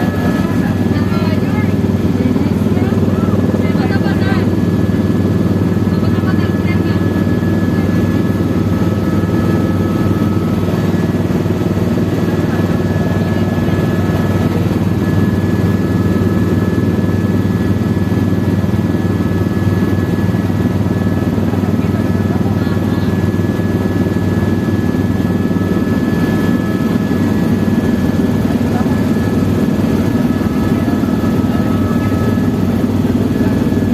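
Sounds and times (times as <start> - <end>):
helicopter rotor and engine drone: 0.0 - 33.9.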